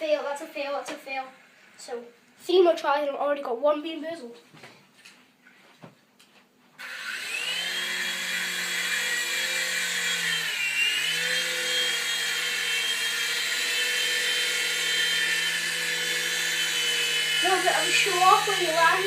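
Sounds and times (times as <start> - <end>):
toy helicopter motor whirring: 6.8 - 19.0.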